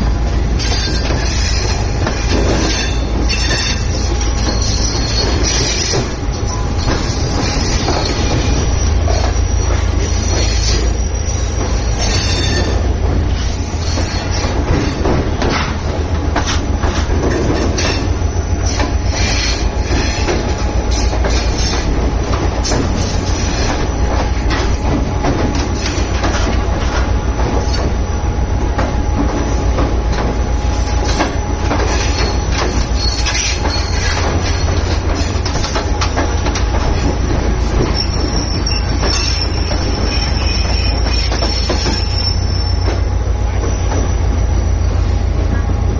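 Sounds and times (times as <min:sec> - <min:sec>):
train wheels clacking: 0:00.0 - 0:44.6
train coaches rumbling: 0:00.0 - 0:45.9
high wheel squeal: 0:00.6 - 0:15.0, 0:17.8 - 0:20.3, 0:30.7 - 0:36.0, 0:37.7 - 0:45.3.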